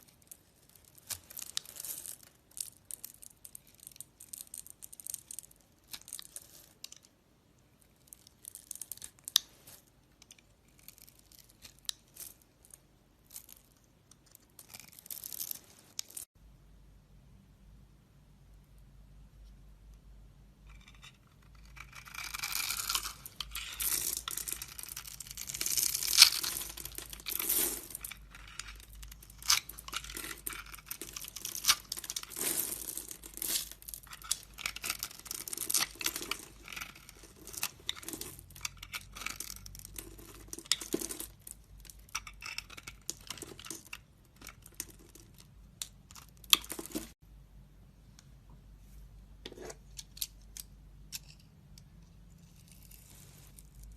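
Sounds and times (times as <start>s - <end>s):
blade carving soap: 20.8s - 32.3s.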